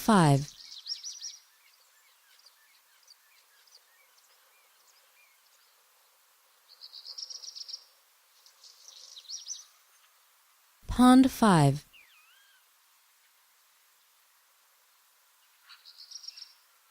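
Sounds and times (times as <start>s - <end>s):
songbirds chirping: 0.0s - 10.5s, 15.2s - 16.9s.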